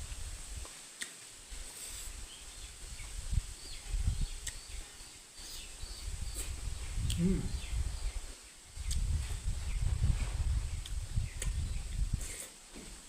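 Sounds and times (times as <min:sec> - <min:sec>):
faint bird chirps: 0:02.3 - 0:09.9.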